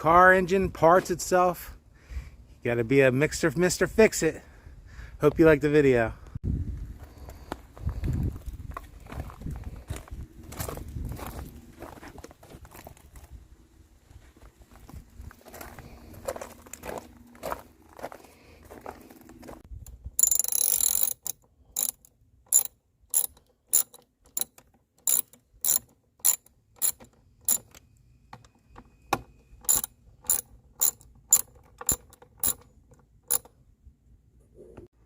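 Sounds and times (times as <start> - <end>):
ratchet clicking: 20.2 - 27.8, 29.6 - 32.7, 33.3 - 33.5.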